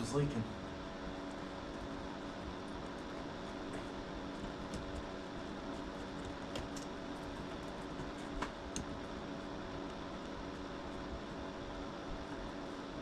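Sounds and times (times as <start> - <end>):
garage room hum: 0.0 - 13.0.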